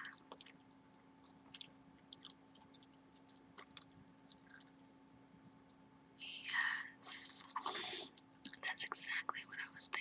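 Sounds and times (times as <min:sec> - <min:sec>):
gum chewing mouth smacks: 0:00.0 - 0:05.8.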